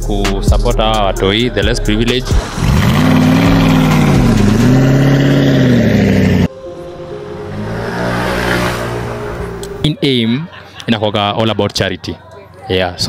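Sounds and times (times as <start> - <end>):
car engine revving: 2.0 - 9.9
quieter engine humming: 2.0 - 10.9.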